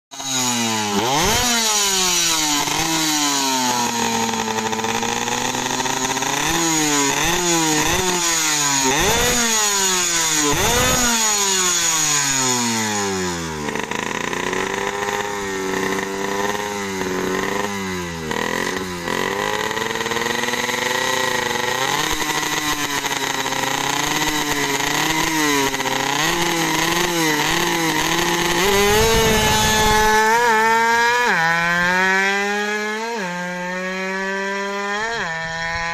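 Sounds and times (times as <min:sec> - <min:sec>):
two-stroke engine revving: 0:00.1 - 0:35.9.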